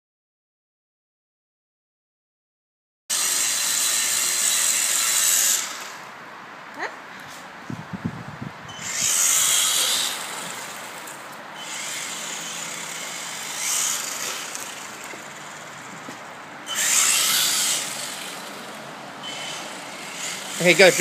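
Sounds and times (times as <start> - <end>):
electric motors whining: 3.1 - 6.1, 8.7 - 21.0.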